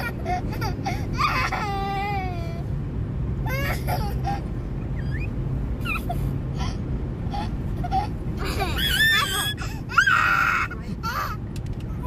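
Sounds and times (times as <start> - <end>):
road noise rumble: 0.0 - 12.0
young child whining and crying: 5.8 - 11.4.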